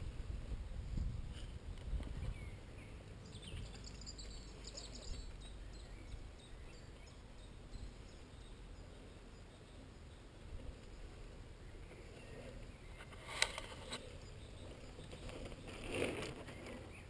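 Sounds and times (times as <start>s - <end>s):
low rumble on microphone: 0.0s - 3.8s
birds chirping: 0.0s - 17.0s.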